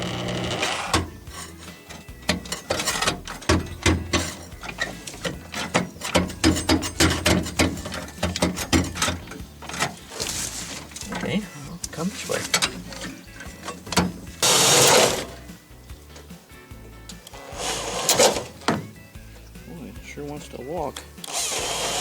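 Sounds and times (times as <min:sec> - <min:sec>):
tools knocking on sheet metal: 0:00.9 - 0:11.3, 0:18.1 - 0:19.0.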